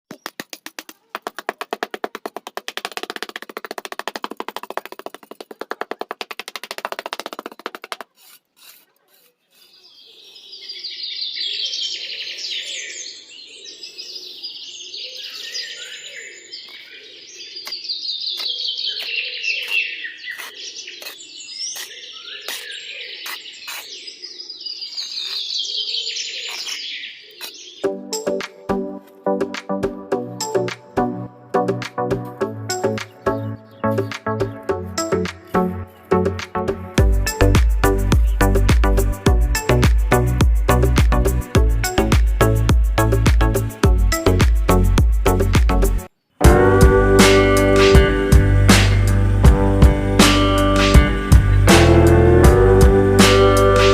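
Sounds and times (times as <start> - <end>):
birds chirping: 0.1 - 53.9
burst of music: 46.4 - 53.9.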